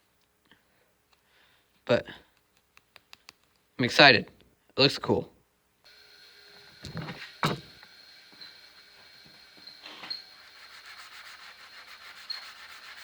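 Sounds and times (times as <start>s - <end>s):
short knocks: 6.8s - 7.8s
sandpaper rubbing knife blade: 9.7s - 13.0s.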